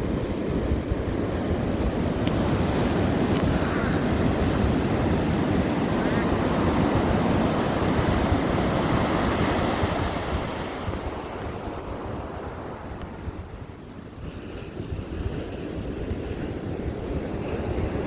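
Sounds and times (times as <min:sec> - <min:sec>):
wave washing in: 0:00.0 - 0:12.8
wind buffeting microphone: 0:00.0 - 0:18.0.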